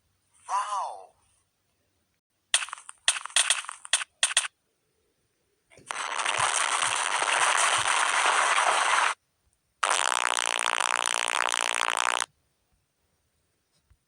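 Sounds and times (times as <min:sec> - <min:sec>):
hissing noise: 0:02.6 - 0:04.5, 0:05.9 - 0:09.2.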